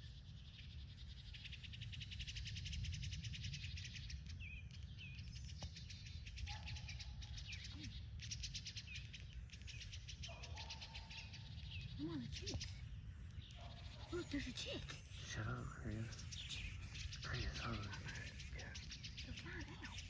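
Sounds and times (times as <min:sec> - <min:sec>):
small birds chirping: 0:00.0 - 0:20.0
low outdoor rumble: 0:11.5 - 0:20.0.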